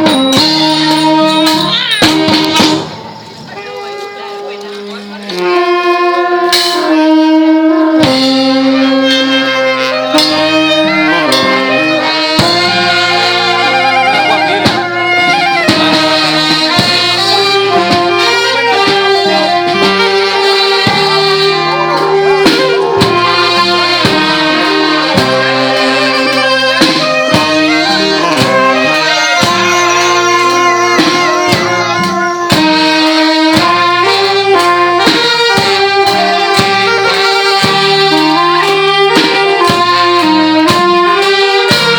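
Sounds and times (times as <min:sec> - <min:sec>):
saxophone and brass melody: 0:00.0 - 0:41.9
drum and cymbal strokes: 0:06.5 - 0:41.9.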